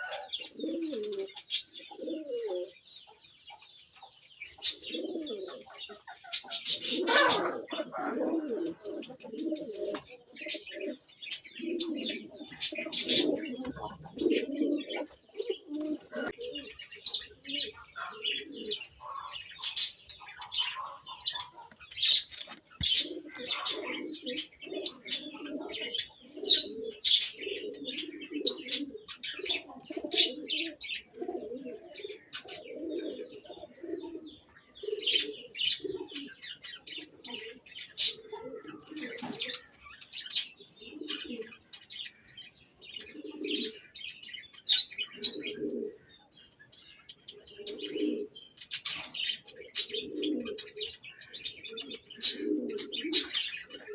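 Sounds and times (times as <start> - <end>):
low cooing call: 0.0 - 2.8, 6.7 - 11.0, 23.0 - 36.3, 47.5 - 48.3
budgies chirping and chattering: 0.0 - 53.9.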